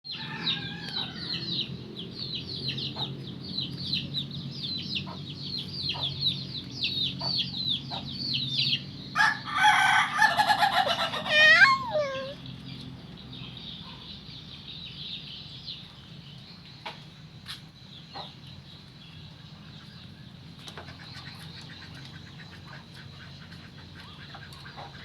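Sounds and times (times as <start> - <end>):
rooster crowing: 0.1 - 1.6, 9.2 - 12.4
chicks peeping: 0.1 - 12.4, 18.0 - 18.6, 19.7 - 25.0.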